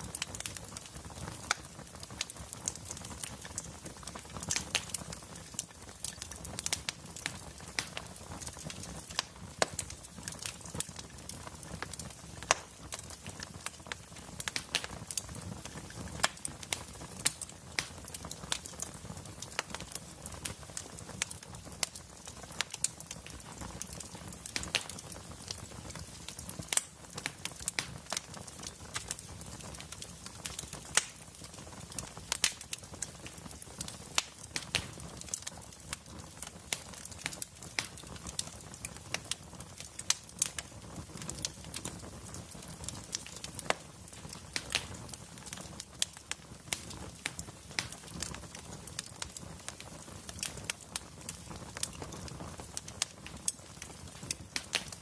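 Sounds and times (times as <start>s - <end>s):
low rumble of flames: 0.0s - 55.0s
wood fire crackling: 0.0s - 55.0s.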